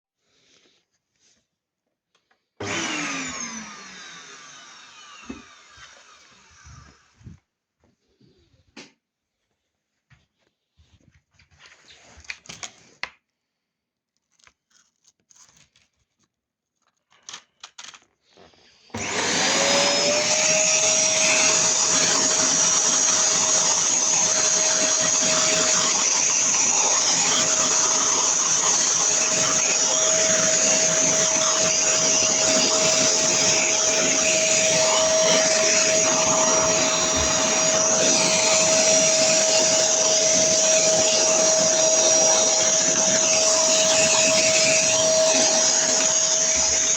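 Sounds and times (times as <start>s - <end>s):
vacuum cleaner running: 2.6s - 7.3s, 18.9s - 46.9s.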